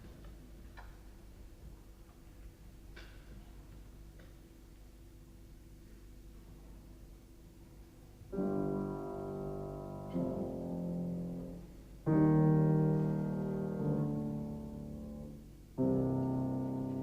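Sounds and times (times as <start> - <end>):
slow piano chords ringing: 8.2 - 17.0.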